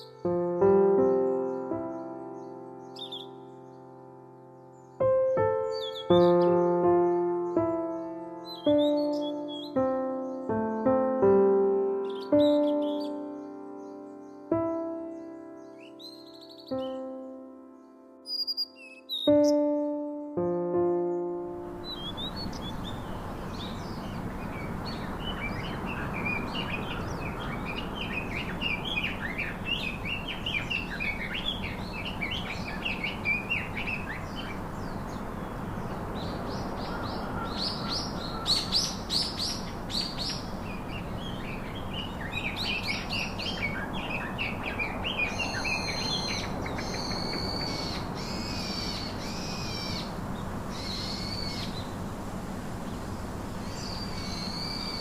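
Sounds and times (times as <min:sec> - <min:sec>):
repeated bird call notes: 0:00.0 - 0:03.9, 0:04.7 - 0:17.4, 0:18.3 - 0:52.0
songbirds twittering: 0:00.0 - 0:55.0
steady outdoor hiss: 0:00.0 - 0:55.0
sharp bird chirps: 0:01.1 - 0:03.9, 0:08.4 - 0:11.0, 0:12.0 - 0:17.3, 0:18.3 - 0:19.8, 0:21.8 - 0:35.1, 0:36.2 - 0:50.1.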